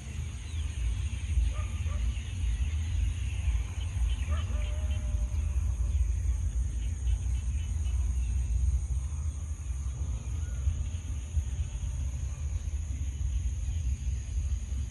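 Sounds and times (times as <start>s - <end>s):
fluttering low rumble: 0.0s - 14.9s.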